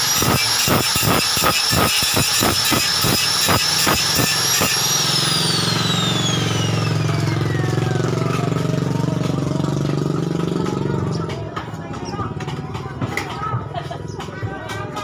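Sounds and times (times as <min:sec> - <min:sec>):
electric motor whine: 0:00.0 - 0:08.4
low engine-like hum: 0:03.3 - 0:15.0.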